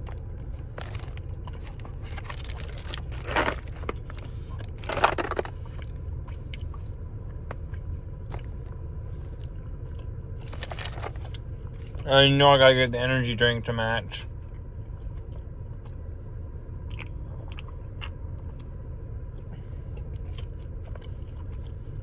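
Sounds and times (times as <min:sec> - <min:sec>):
biting and chewing candy: 0:00.0 - 0:06.8, 0:08.3 - 0:08.7, 0:09.5 - 0:11.4
low rumble: 0:00.0 - 0:12.2.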